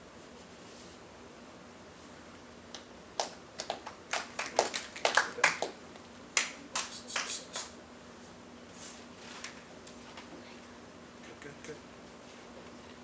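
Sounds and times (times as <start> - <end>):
people snapping fingers: 2.7 - 5.7, 6.4 - 7.8.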